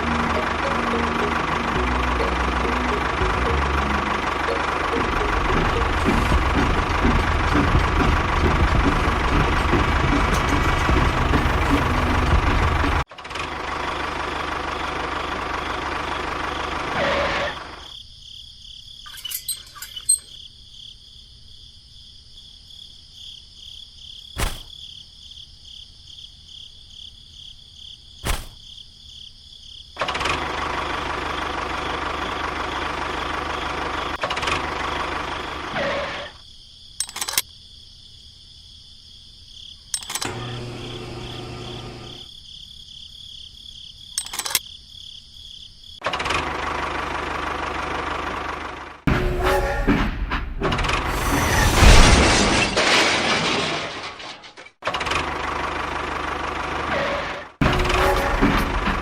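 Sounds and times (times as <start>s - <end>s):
crickets chirping: 17.5s - 30.0s, 34.8s - 46.0s
sharp clicks: 37.0s - 37.5s.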